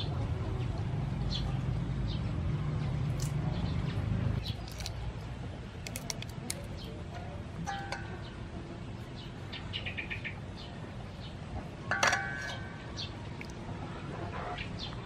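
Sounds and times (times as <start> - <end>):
birds chirping: 1.2 - 5.0, 5.9 - 15.0
shrimp being peeled in water: 3.1 - 3.4, 4.4 - 6.8.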